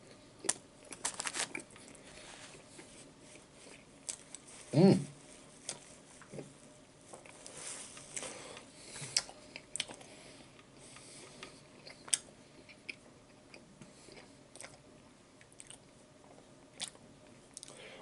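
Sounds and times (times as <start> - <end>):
chewing with wet mouth clicks: 9.2 - 10.7, 11.4 - 14.8, 15.4 - 15.8, 16.8 - 17.8.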